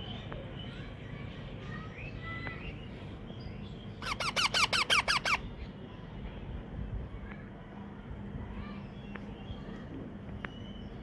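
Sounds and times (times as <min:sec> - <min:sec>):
parakeet chirping: 0:04.0 - 0:05.5
parakeet squeaky begging calls: 0:04.0 - 0:05.5.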